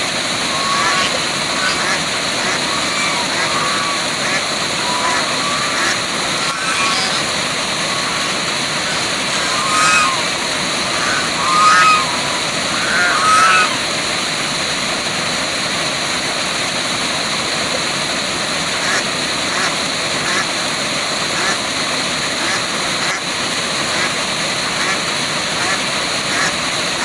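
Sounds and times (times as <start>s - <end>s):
waterfall rushing: 0.0s - 27.0s
short pitched animal calls: 0.1s - 14.1s.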